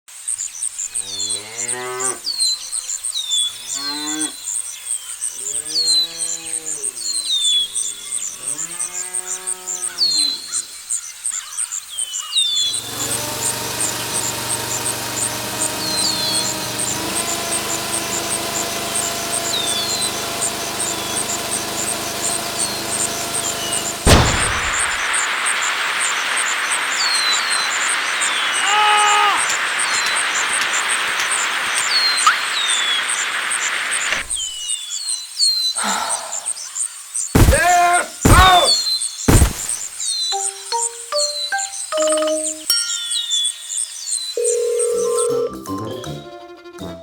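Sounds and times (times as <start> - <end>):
cattle mooing: 5.6 - 6.9
bird chirps: 36.4 - 44.6.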